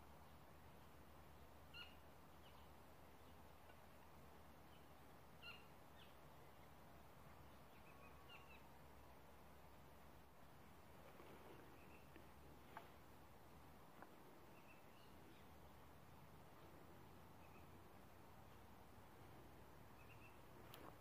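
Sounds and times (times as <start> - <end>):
small bird chirping faintly: 0.0 - 21.0.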